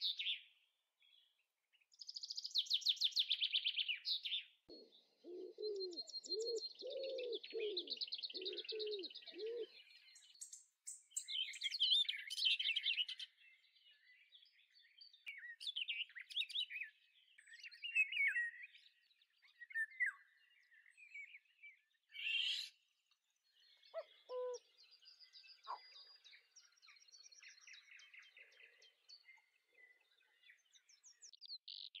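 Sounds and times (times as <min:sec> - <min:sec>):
birds chirping and trilling: 0:00.0 - 0:32.0
lower bird call: 0:23.9 - 0:24.7.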